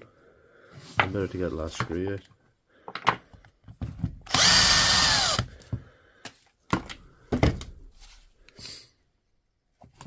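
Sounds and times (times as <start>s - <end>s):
power screwdriver whine: 4.3s - 5.5s.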